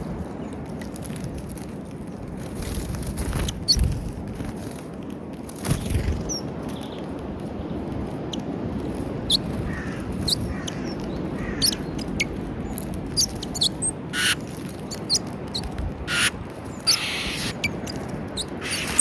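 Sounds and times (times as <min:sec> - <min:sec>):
small birds chirping: 0:05.7 - 0:19.0
low background rumble: 0:07.3 - 0:19.0.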